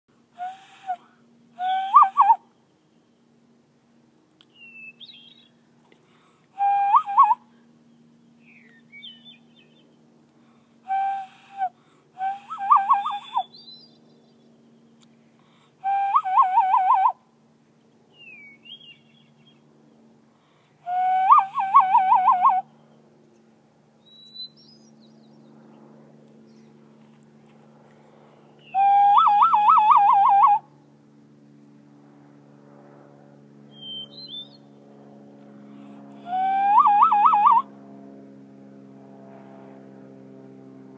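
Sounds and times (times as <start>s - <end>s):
bird calls: 1.6s - 3.2s, 4.5s - 5.6s, 6.6s - 7.4s, 10.9s - 15.0s, 28.6s - 30.6s, 33.7s - 34.7s, 36.3s - 37.6s
person whistling: 10.9s - 13.5s.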